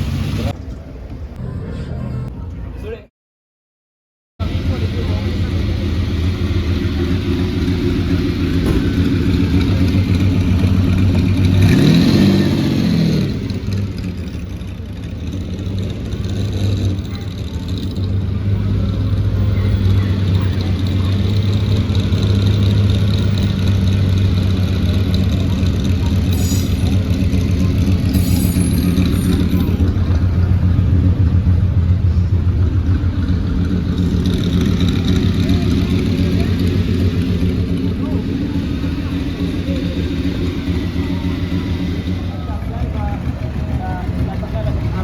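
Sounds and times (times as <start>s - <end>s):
car engine running: 4.4s - 45.0s.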